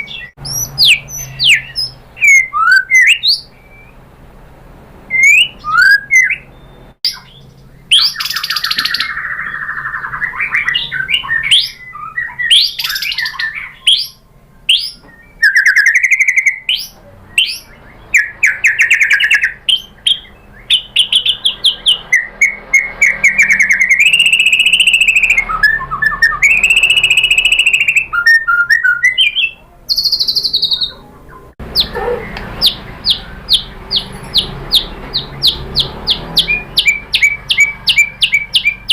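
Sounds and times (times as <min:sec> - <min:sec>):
songbird singing varied song: 0:00.0 - 0:04.1, 0:05.1 - 0:38.9.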